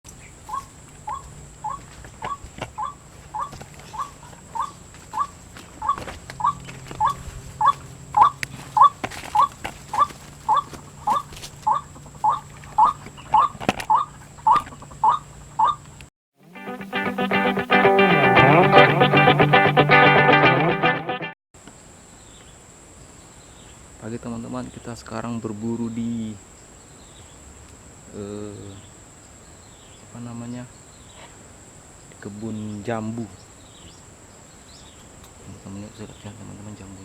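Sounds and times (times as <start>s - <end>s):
waterhen calling: 0.2s - 15.8s.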